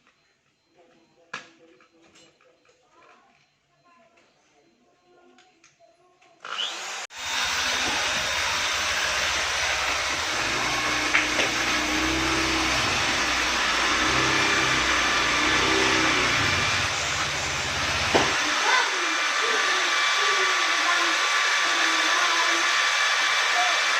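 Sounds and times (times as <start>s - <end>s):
power tool whirring: 6.4s - 23.9s.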